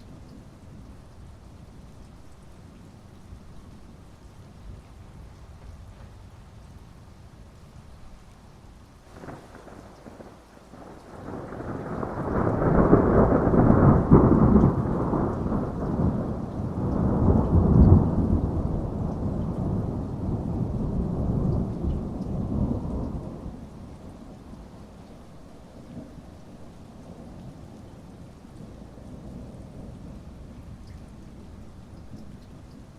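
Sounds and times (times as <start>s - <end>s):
steady rain: 0.0s - 32.9s
thunder rumbling: 9.1s - 24.8s.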